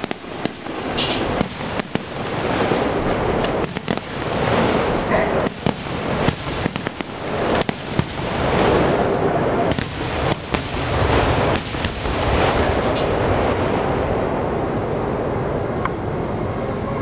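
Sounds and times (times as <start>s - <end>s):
fireworks bangs and cracks: 0.0s - 14.6s
continuous noisy din: 0.0s - 17.0s.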